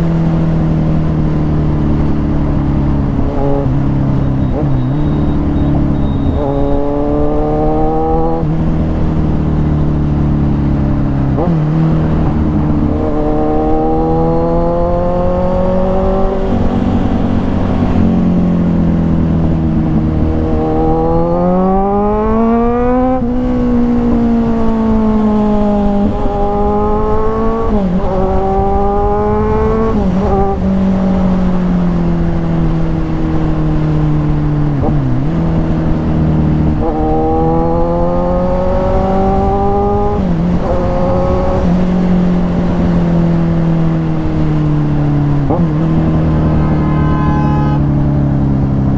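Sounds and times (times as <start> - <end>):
motorcycle engine accelerating through gears: 0.0 - 48.9.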